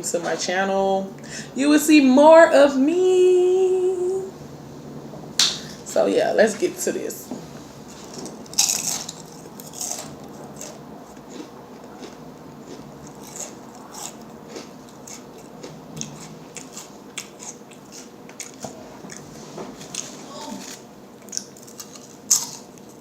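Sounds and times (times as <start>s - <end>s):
wet chewing: 8.1s - 23.0s.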